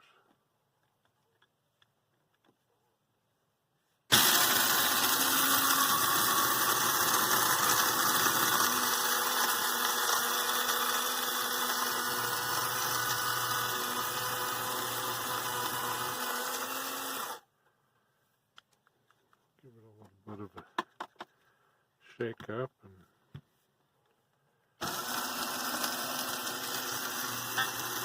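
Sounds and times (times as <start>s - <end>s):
coffee grinder whirring: 4.1s - 17.5s, 24.8s - 28.0s.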